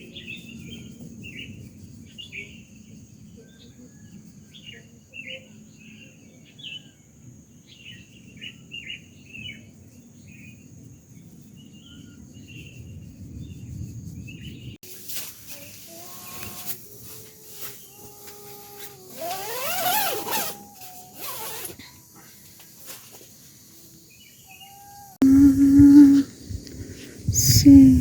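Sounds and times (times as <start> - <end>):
insect drone: 0.0 - 28.0
birds chirping: 15.6 - 26.3.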